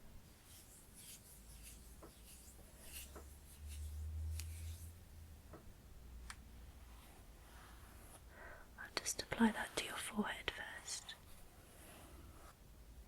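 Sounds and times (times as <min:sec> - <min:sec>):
crisp rustling scratches: 0:00.3 - 0:05.0.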